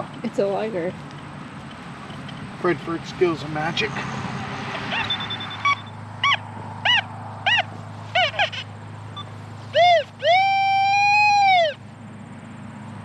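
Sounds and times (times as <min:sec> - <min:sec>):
metal detector beeps: 0:04.8 - 0:07.0, 0:09.2 - 0:11.4.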